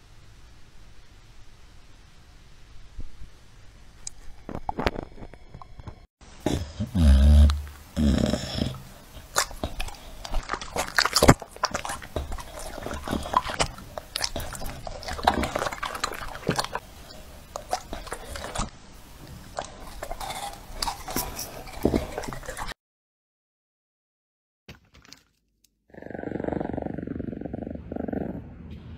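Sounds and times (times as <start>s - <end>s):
dog crunching fruit: 6.5s - 22.8s.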